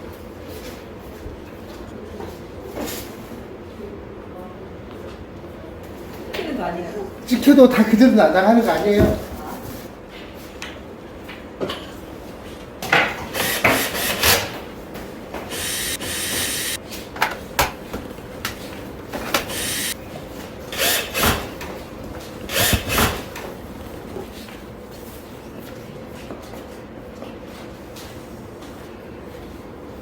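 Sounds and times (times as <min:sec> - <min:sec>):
steady hissing: 0:15.5 - 0:16.8, 0:19.4 - 0:20.0.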